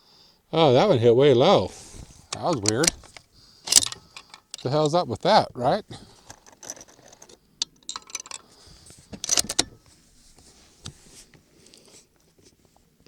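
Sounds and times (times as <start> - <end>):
rifle bolt clicks and clatter: 2.3 - 5.1, 6.2 - 9.9.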